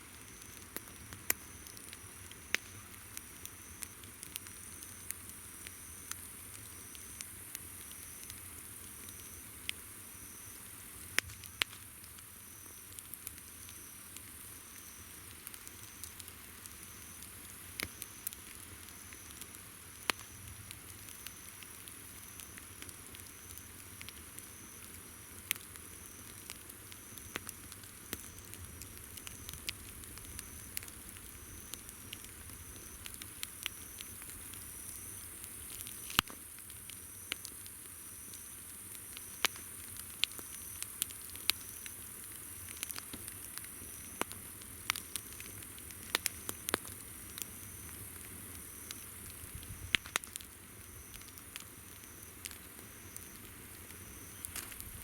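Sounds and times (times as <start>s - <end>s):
campfire crackling and popping: 0.0s - 55.0s
insect chirping: 29.2s - 44.3s, 45.1s - 55.0s.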